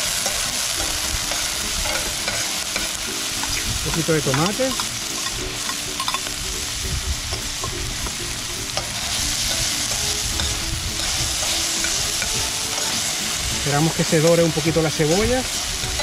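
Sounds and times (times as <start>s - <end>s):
tongs clicking and scraping pan: 0.0s - 6.4s, 8.8s - 16.0s
vegetables sizzling in a frying pan: 0.0s - 16.0s.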